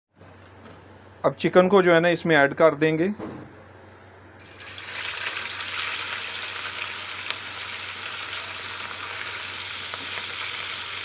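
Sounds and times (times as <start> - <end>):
chicken frying in oil: 4.4 - 11.0.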